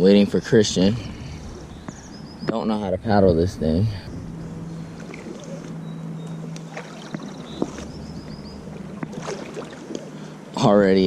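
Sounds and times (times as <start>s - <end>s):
water sloshing and lapping: 4.3s - 10.7s.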